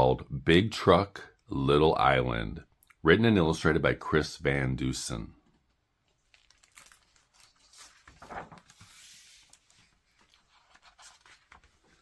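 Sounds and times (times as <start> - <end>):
paper rustling: 6.0 - 12.0
page sliding swish: 7.5 - 12.0.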